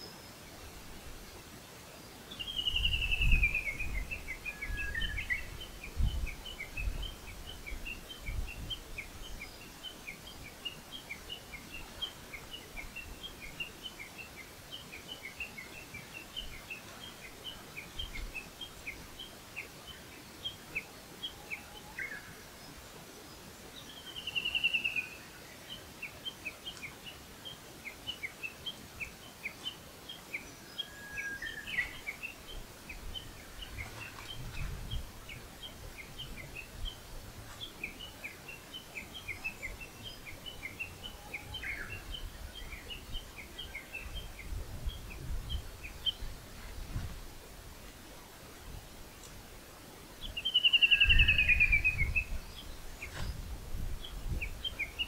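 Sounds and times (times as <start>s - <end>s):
birdsong trill and chirps: 2.0s - 47.0s, 50.2s - 55.0s
low thumps of wind: 2.4s - 13.8s, 31.6s - 55.0s.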